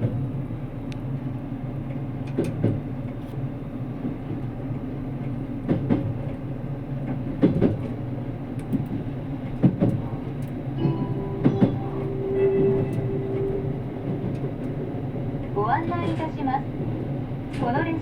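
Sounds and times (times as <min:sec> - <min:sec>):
train cabin rumble: 0:00.0 - 0:18.0
steady tone: 0:10.8 - 0:15.4.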